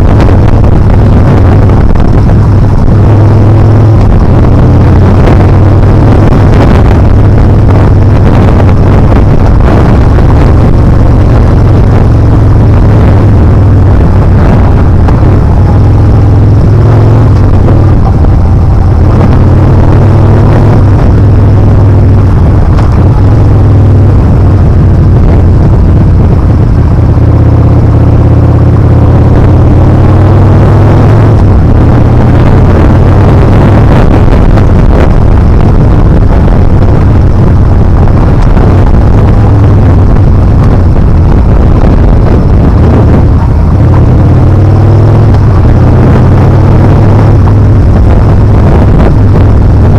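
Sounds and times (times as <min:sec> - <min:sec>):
motorcycle engine running: 0:00.0 - 0:49.9
wind rush on microphone: 0:00.0 - 0:49.9.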